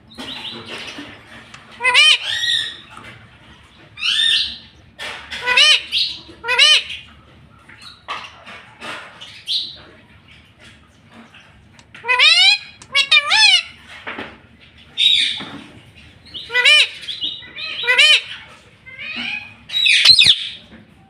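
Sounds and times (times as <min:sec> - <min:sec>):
parakeet calling: 0:01.8 - 0:02.8, 0:05.4 - 0:07.0, 0:12.0 - 0:13.8, 0:16.3 - 0:18.4, 0:19.0 - 0:20.6.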